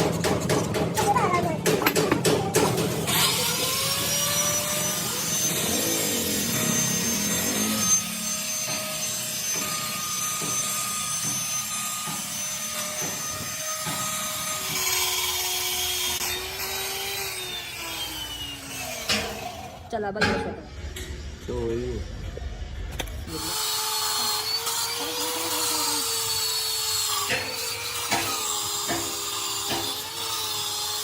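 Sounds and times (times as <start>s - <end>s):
electric motor whining: 1.8s - 19.9s, 23.0s - 31.0s.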